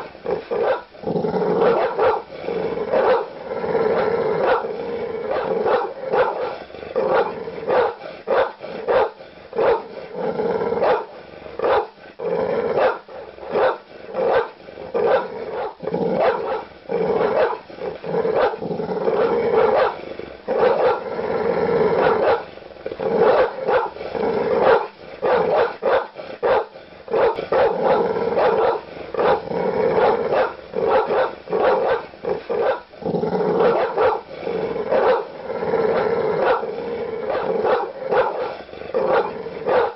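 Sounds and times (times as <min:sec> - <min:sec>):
dogs growling: 0:00.0 - 0:39.9
large dogs barking aggressively: 0:00.0 - 0:39.9.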